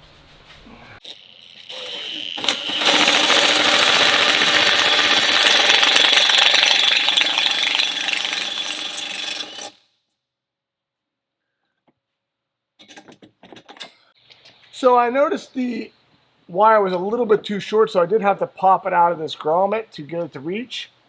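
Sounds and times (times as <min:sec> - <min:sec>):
power tool running: 0:01.0 - 0:09.8.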